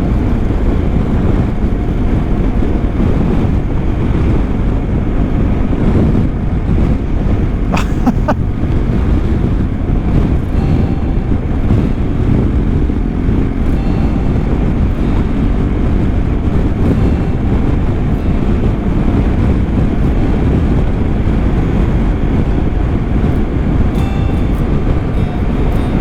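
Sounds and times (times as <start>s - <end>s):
road noise: 0.0s - 26.0s
motorcycle engine running: 10.8s - 24.2s.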